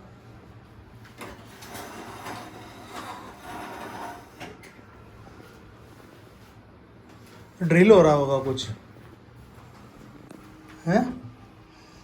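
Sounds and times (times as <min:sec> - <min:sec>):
items scraping: 0:01.1 - 0:04.8.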